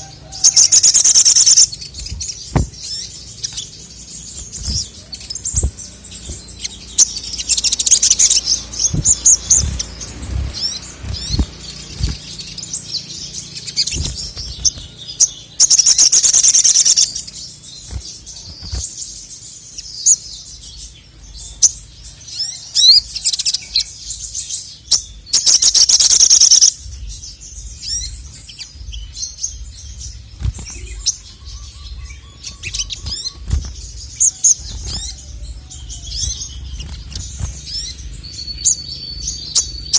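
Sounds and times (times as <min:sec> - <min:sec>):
sunbird singing: 0:00.0 - 0:39.9
low thumps: 0:01.9 - 0:02.9, 0:08.7 - 0:12.3.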